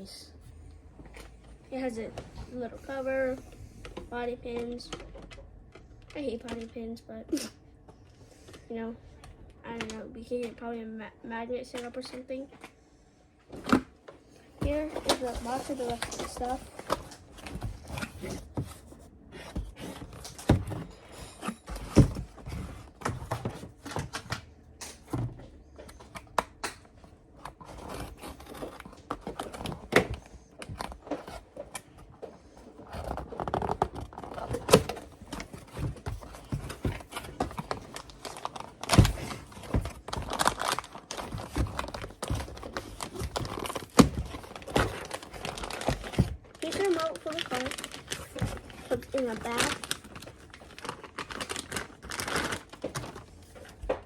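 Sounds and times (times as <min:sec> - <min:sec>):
knocks and thunks in a cardboard box: 0:14.6 - 0:24.4, 0:25.0 - 0:26.5, 0:27.6 - 0:54.0
packaging rustling and crinkling: 0:14.6 - 0:54.0.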